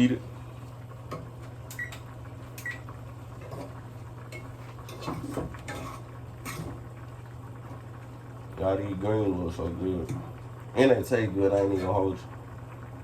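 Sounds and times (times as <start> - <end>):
oven electronic beep: 1.7 - 2.9.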